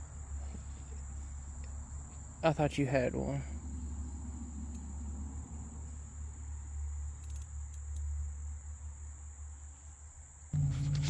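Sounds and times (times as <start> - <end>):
insects droning: 0.0 - 11.0
low rumble: 3.6 - 7.0.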